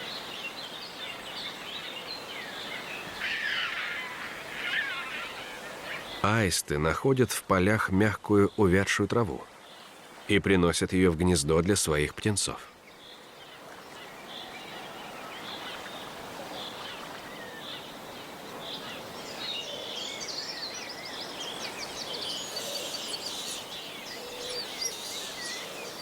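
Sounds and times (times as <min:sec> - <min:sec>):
steady outdoor hiss: 0:00.0 - 0:26.0
small birds chirping: 0:12.6 - 0:26.0.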